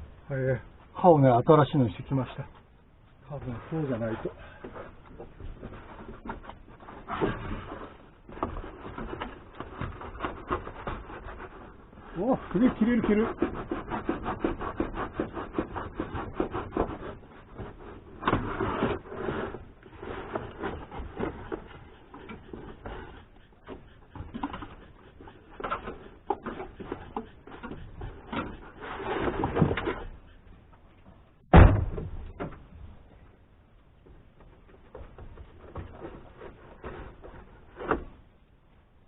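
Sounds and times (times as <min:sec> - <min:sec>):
blade scraping: 0:05.7 - 0:30.4
loud knock: 0:31.5 - 0:32.5.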